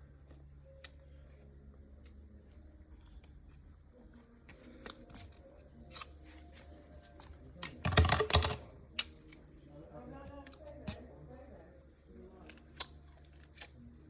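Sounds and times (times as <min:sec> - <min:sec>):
sugar cane cracking and splintering: 0:04.6 - 0:06.6, 0:07.2 - 0:09.5, 0:12.3 - 0:14.0.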